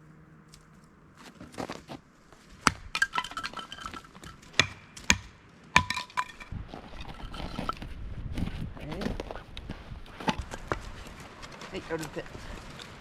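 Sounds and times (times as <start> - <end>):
icy wood clinking and cracking: 0.0 - 8.0, 10.1 - 13.0.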